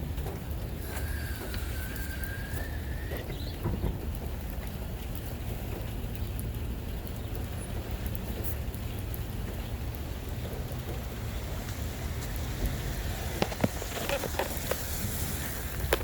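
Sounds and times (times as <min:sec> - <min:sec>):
thin whistling tone: 0:00.8 - 0:03.6
short upward squeak: 0:00.8 - 0:03.7.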